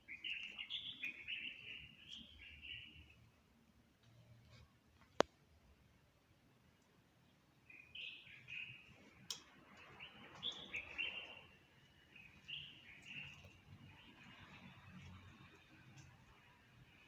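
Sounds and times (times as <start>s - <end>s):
songbird chirping and trilling: 0.0s - 3.4s, 7.2s - 17.0s.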